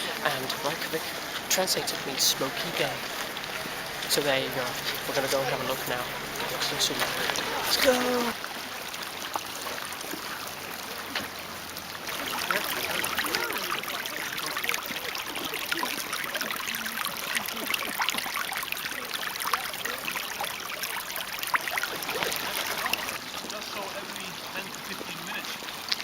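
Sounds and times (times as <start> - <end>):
faint voices: 0.0 - 8.4, 12.0 - 20.8
water running and bubbling: 0.0 - 26.0.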